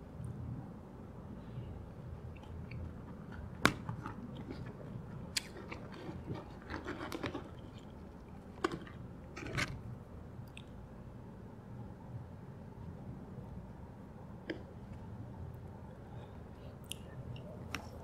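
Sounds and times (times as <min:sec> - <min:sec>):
chewing and wet mouth sounds: 0:02.2 - 0:09.8, 0:10.4 - 0:10.9.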